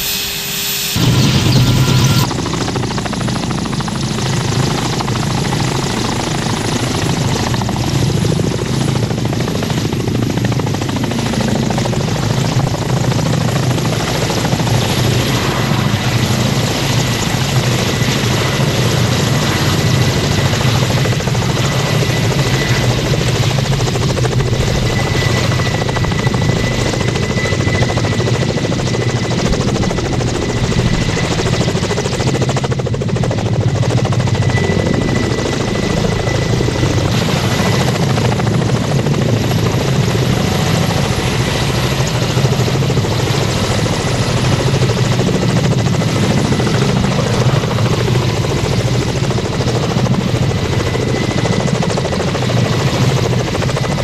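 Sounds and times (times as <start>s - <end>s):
thin high whine: 0.0s - 2.3s
helicopter engine and rotor: 0.0s - 54.0s.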